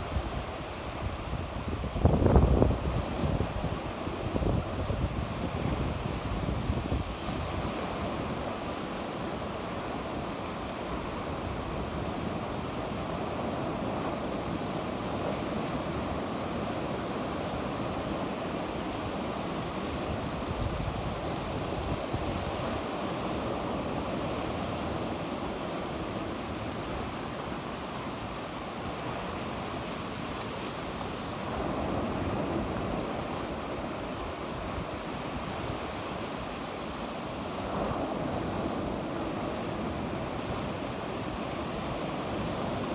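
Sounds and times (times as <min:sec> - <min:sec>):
wind noise on microphone: 0:00.0 - 0:08.8, 0:11.0 - 0:27.4
sea waves washing onto shore: 0:00.0 - 0:42.9.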